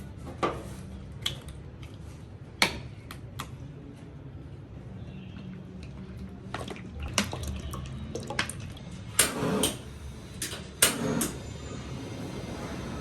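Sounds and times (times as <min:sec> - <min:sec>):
water splashing in a sink: 0:06.1 - 0:09.1.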